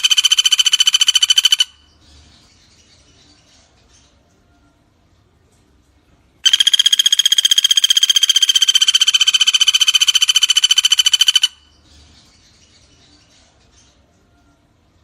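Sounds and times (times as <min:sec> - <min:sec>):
woodpecker rattling trill: 0:00.0 - 0:01.9, 0:06.4 - 0:11.7.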